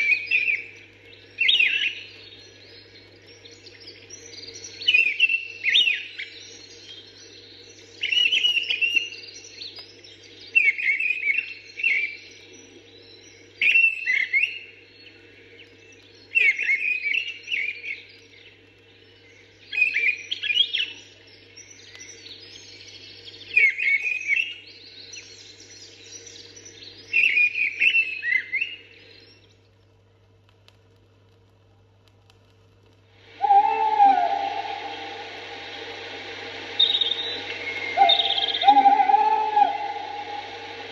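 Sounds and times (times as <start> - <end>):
steady low hum: 28.8 - 40.9
other birds calling: 33.3 - 40.9
thrush singing: 33.3 - 40.9.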